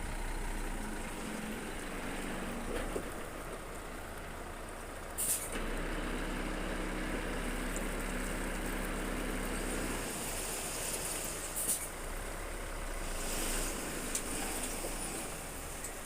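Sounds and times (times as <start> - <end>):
diesel machinery running: 0.0 - 16.0
short sharp hiss: 5.2 - 5.6, 10.6 - 12.0.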